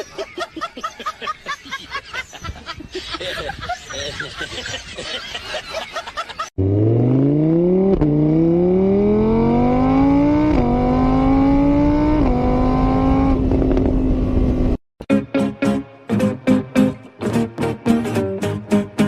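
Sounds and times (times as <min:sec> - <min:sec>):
car engine accelerating hard: 0:06.6 - 0:14.8.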